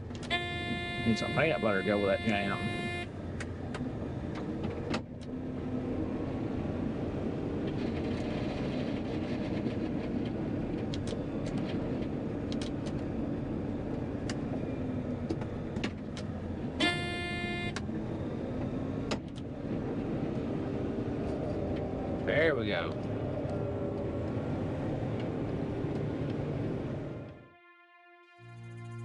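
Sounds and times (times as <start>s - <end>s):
combine harvester running: 0.0s - 5.4s
electronic warning beep: 0.3s - 3.1s.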